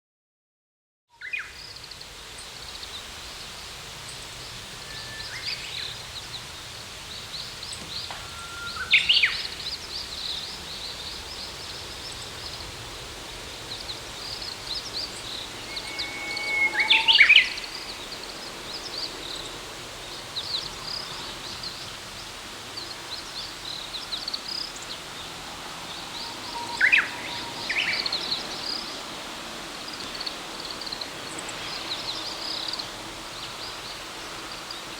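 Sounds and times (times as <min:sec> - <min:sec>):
background hiss: 0:01.2 - 0:34.9
sharp sweeping bird calls: 0:04.8 - 0:19.7
birds chirping: 0:04.9 - 0:21.8.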